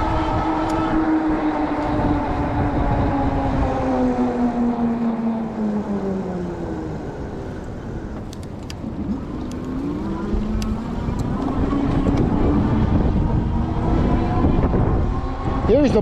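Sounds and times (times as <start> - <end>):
electric bike motor whining: 0.0 - 16.0
wind rumble on microphone: 0.0 - 16.0.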